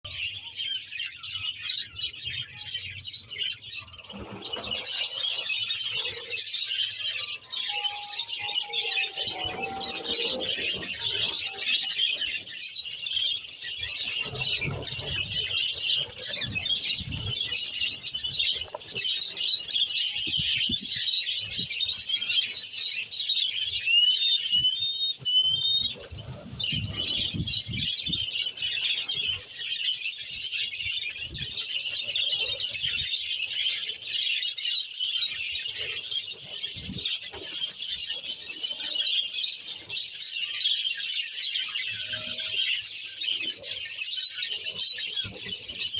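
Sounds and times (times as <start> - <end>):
budgies chattering and warbling: 0.1 - 45.9
rising bird whistles: 6.9 - 12.4.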